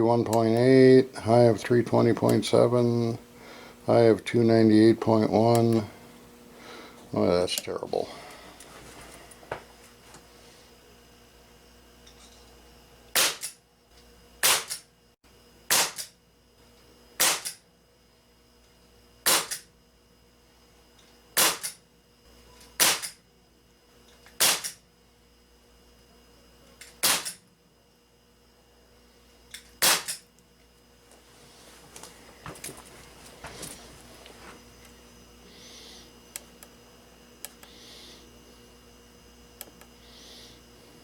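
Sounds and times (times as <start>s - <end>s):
air pistol pops: 13.2s - 13.6s, 14.4s - 14.8s, 15.7s - 16.1s, 17.2s - 17.6s, 19.3s - 19.7s, 21.4s - 21.8s, 22.8s - 23.2s, 24.3s - 24.8s, 27.0s - 27.4s, 29.8s - 30.2s.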